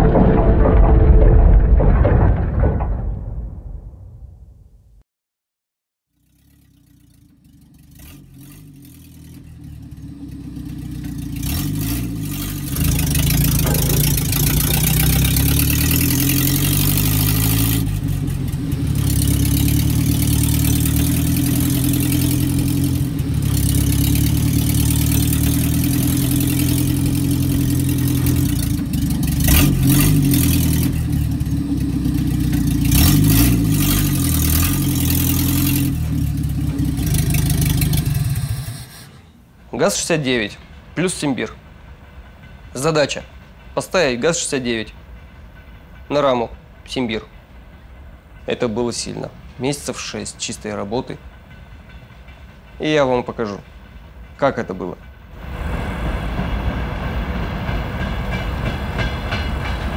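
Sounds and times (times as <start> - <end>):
vehicle engine revving: 6.1 - 39.2.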